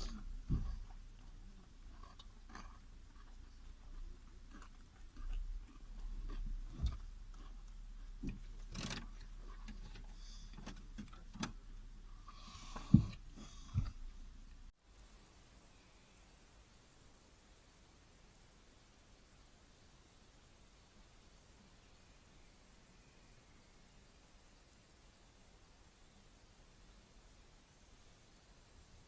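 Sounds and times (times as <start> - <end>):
small clicks and taps in car: 8.2 - 11.6.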